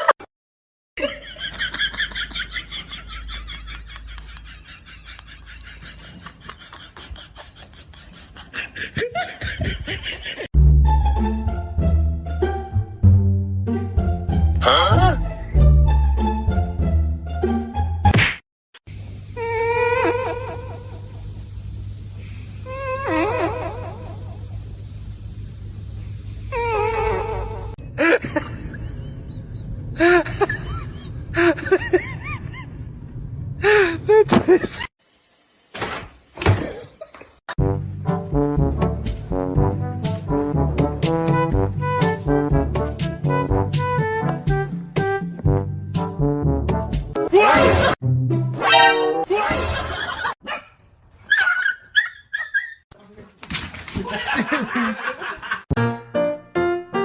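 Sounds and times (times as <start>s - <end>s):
person laughing: 1.0s - 10.5s, 27.9s - 32.9s, 49.3s - 50.4s, 54.0s - 55.7s
music with plucked bass: 10.6s - 18.0s, 37.6s - 47.2s.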